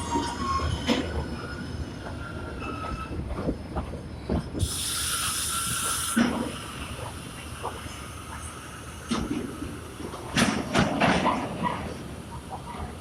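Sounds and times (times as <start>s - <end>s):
wheel and brake squeal: 0.0s - 3.4s
train clanks: 0.0s - 13.0s
compressed air hiss: 4.6s - 9.9s.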